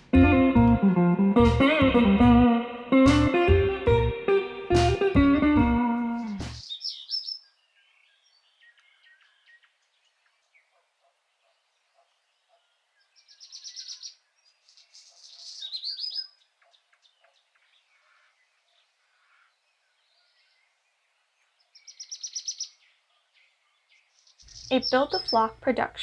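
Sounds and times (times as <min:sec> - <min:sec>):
birds chirping: 0:05.8 - 0:10.8, 0:11.4 - 0:26.0
bird trilling: 0:24.5 - 0:25.5.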